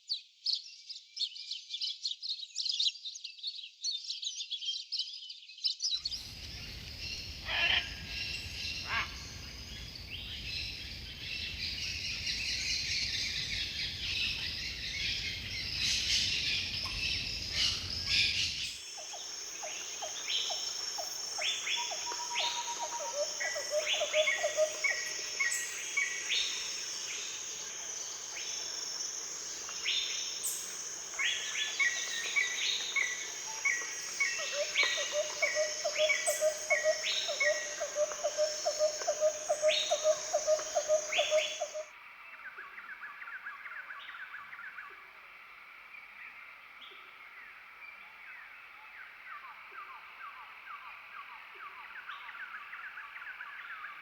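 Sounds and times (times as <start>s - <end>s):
birds calling and chirping: 5.6s - 41.9s
high-pitched insect drone: 6.1s - 41.9s.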